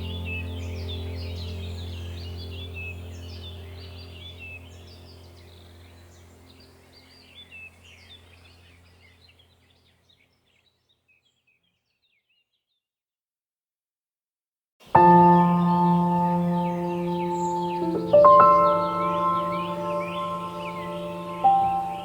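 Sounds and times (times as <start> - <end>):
low droning hum: 0.0 - 9.0
songbirds chirping and trilling: 0.0 - 12.9, 14.9 - 22.0.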